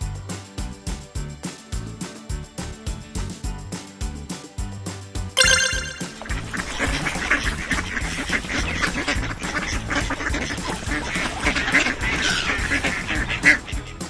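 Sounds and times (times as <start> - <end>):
ducks quacking: 6.2 - 14.0.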